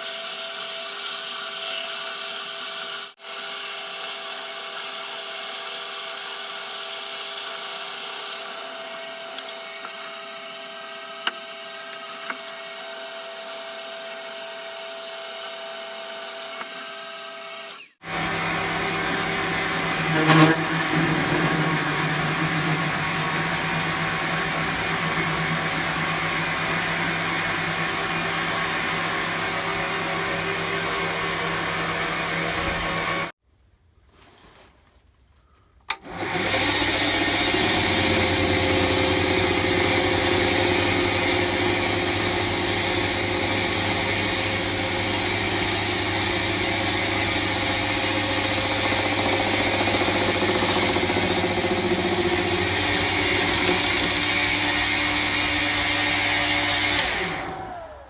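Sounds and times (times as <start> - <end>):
metal lathe whining: 15.0 - 33.3, 36.0 - 58.0
rough cutting noise: 17.6 - 33.2, 37.4 - 58.0.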